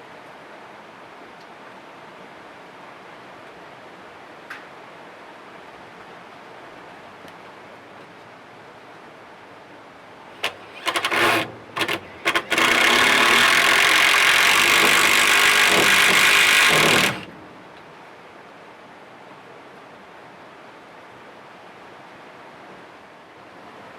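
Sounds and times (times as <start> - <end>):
motor-driven power tool: 10.4 - 17.6.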